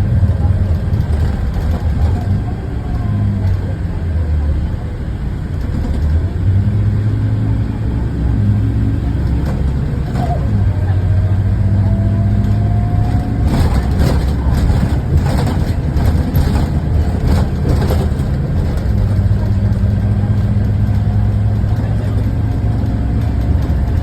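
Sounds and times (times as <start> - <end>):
diesel bus engine humming: 0.0 - 24.0.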